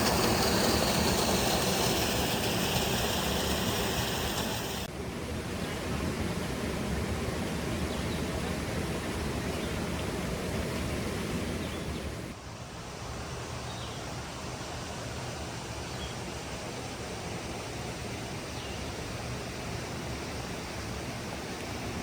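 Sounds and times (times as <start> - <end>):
waterfall rushing: 0.0 - 4.9.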